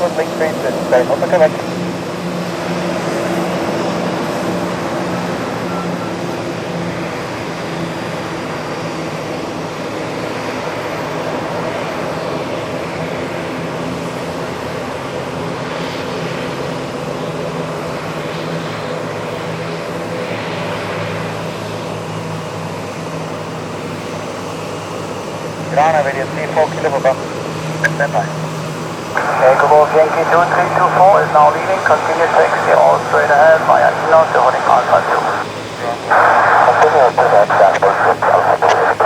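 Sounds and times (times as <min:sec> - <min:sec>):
turboprop engines humming: 0:00.0 - 0:39.0.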